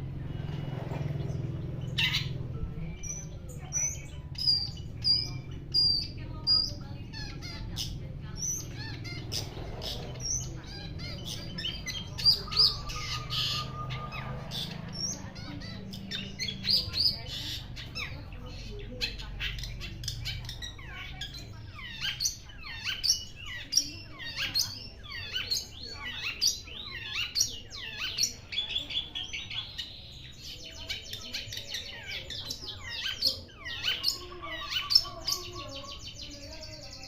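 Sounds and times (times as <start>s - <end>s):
shrike calling harsh notes: 10.6s - 17.8s.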